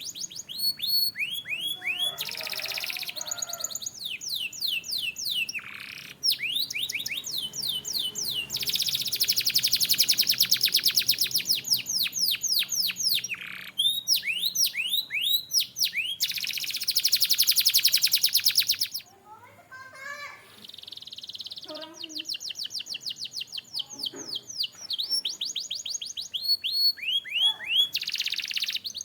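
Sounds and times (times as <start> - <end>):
canary singing: 0.0 - 29.0.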